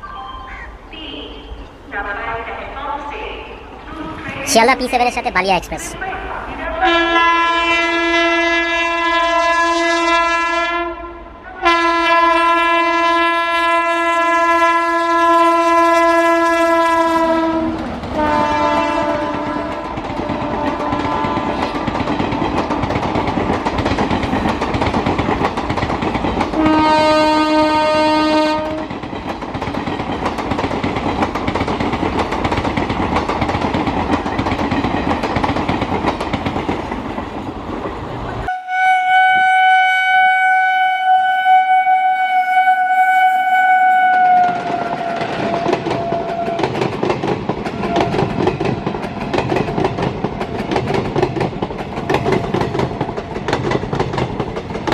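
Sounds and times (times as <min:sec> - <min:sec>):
locomotive horn blasts: 0:06.8 - 0:21.6, 0:26.6 - 0:28.8, 0:38.5 - 0:46.3
train wheels rattling over track joints: 0:19.1 - 0:26.9, 0:28.8 - 0:38.4, 0:44.4 - 0:54.9.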